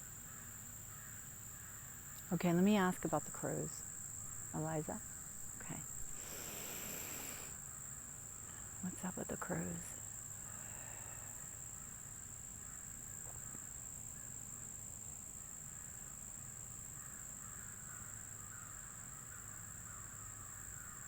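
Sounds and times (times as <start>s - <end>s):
crickets trilling: 0.0s - 21.0s
distant crows cawing: 0.2s - 8.6s, 12.6s - 13.3s, 17.0s - 21.0s.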